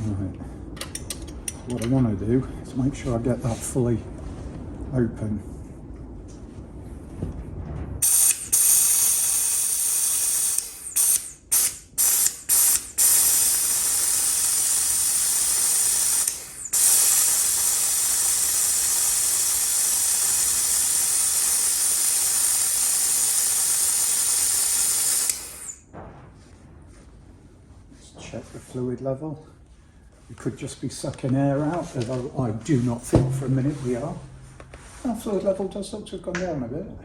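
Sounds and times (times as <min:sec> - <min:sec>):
compressed air hissing: 0:08.0 - 0:25.9.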